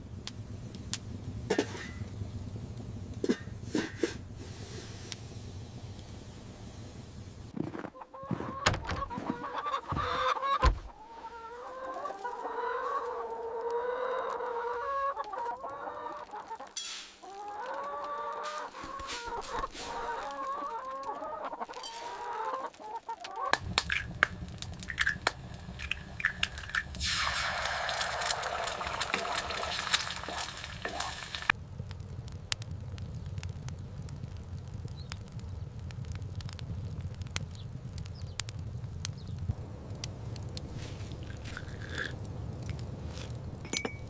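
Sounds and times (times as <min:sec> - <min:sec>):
chickens clucking: 0:07.6 - 0:31.5
sharp clicks and knocks: 0:08.5 - 0:09.2.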